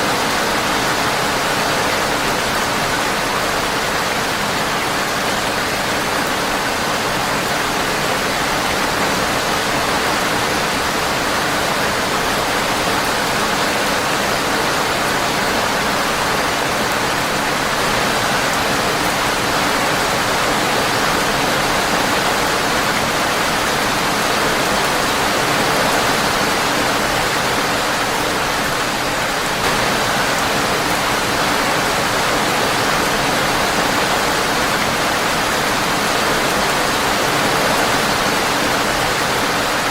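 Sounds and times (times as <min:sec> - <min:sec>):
rain on a windowpane: 0:00.0 - 0:39.9.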